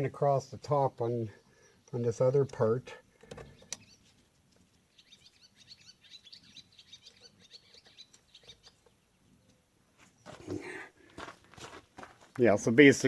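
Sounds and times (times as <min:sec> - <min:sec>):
faint bird chirping: 0:00.7 - 0:10.9.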